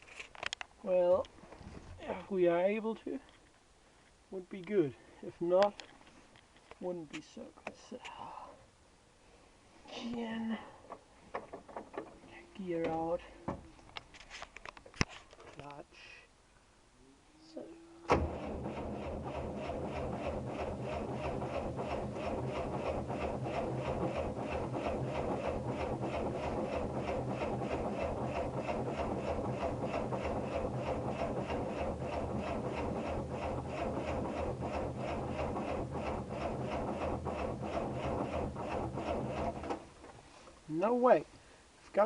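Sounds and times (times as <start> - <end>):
diesel engine cranking slowly: 18.0 - 40.1.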